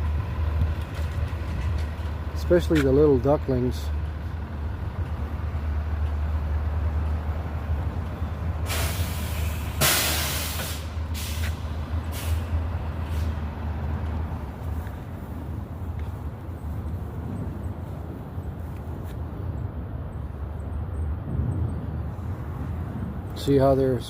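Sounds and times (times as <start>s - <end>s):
road traffic rumble: 0.0s - 24.0s
hissing bursts: 8.6s - 13.4s.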